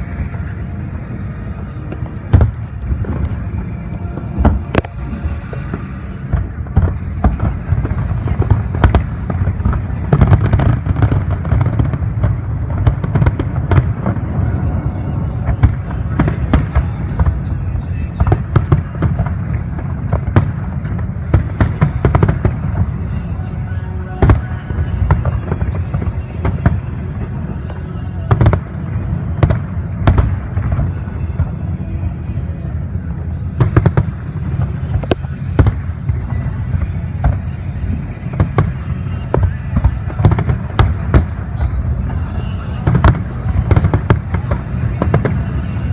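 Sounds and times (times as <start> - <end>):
continuous low rumble: 0.0 - 45.9
firework cracks and booms: 4.2 - 23.4, 24.2 - 31.6, 33.5 - 45.9.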